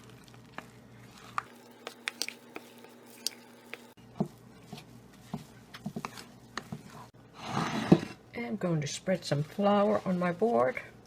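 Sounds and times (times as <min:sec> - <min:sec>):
dough squishing while stirred: 0:01.1 - 0:04.0
utensil tapping against bowl: 0:01.4 - 0:03.9.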